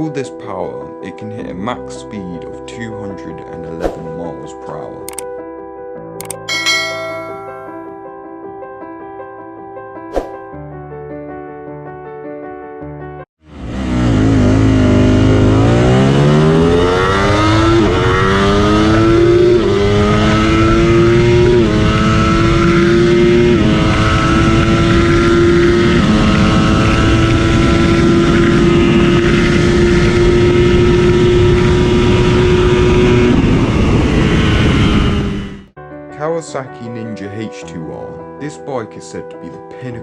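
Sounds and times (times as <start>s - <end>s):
motorcycle engine accelerating: 13.4s - 35.7s.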